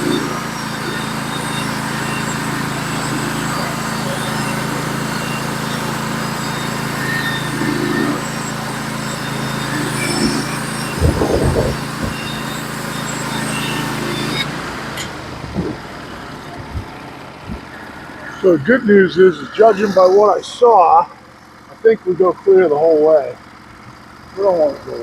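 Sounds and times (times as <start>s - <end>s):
saw blade cutting log: 0.0s - 16.5s
sawmill engine running: 0.0s - 25.0s.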